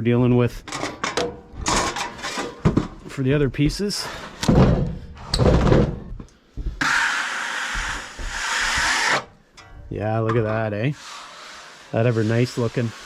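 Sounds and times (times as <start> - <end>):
knocks and scrapes of boards: 1.4 - 9.3
rubbing hiss on rough wood: 10.9 - 13.0.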